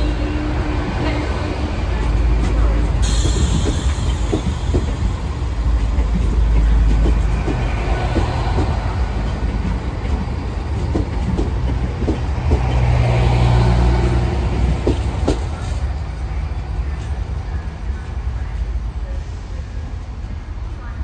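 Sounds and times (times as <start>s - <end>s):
wheels clicking over rail joints: 0.0s - 16.0s
train rumbling on track: 0.0s - 21.0s.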